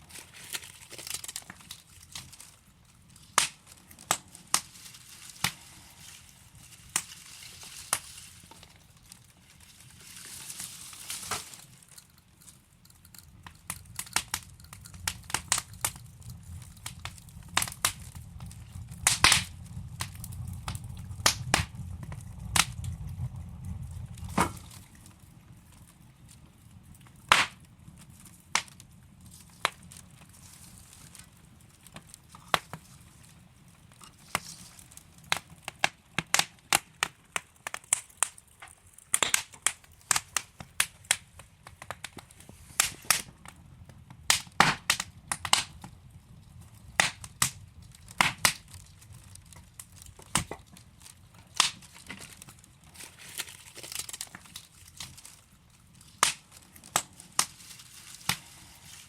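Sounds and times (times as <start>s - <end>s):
logs crackling and popping: 0.0s - 59.0s.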